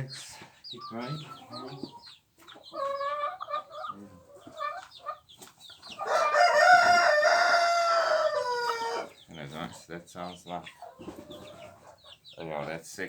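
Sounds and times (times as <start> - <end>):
chickens clucking: 0.0 - 13.0
rooster crowing: 6.0 - 9.1.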